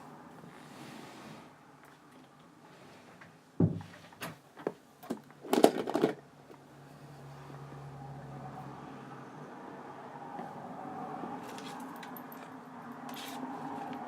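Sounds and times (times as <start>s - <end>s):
thump: 3.6s - 4.0s
clattering household objects: 5.5s - 6.2s.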